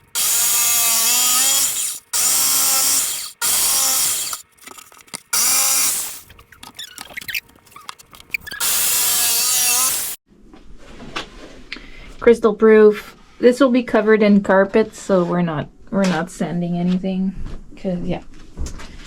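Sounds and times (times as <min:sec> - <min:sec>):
power tool working wood: 0:00.0 - 0:04.4, 0:05.3 - 0:06.3, 0:08.5 - 0:10.2.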